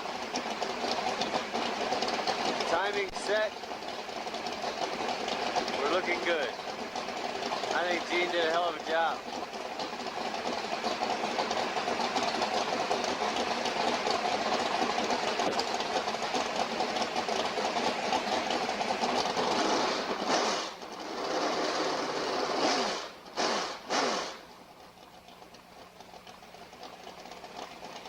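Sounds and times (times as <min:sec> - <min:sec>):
engine running with even clatter: 0:00.0 - 0:28.0
engine revving: 0:10.0 - 0:24.6.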